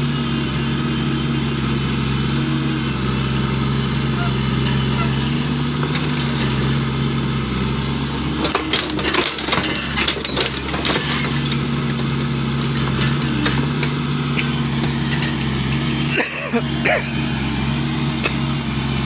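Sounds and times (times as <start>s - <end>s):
diesel engine running: 0.0s - 19.0s
excavator knocks and clatter: 4.5s - 17.1s.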